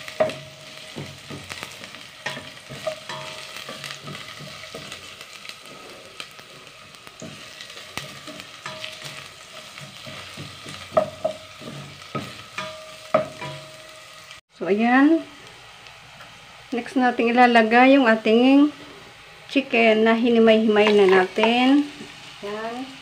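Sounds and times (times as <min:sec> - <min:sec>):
onion and garlic sizzling in oil: 0:00.0 - 0:23.0
spatula scraping and tapping pot: 0:00.1 - 0:05.2, 0:07.2 - 0:13.7.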